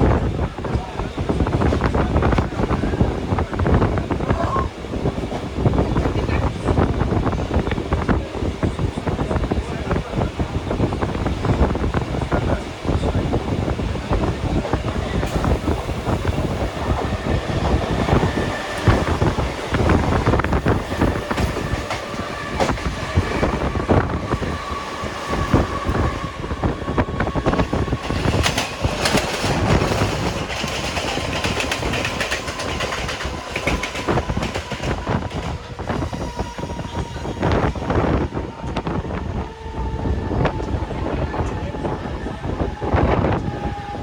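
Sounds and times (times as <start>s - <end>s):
train wheels clattering on rails: 10.7s - 38.9s.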